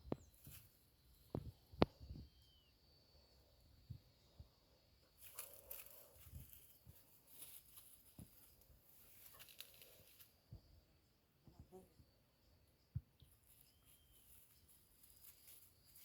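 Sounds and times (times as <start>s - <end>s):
faint rustling: 5.1s - 10.4s.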